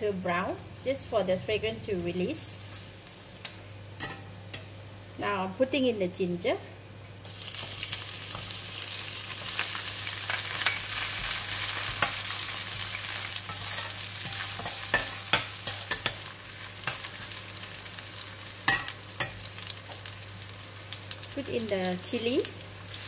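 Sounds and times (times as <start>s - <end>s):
ginger sizzling in hot oil: 7.2s - 23.0s
metal spatula scraping wok: 11.8s - 17.3s.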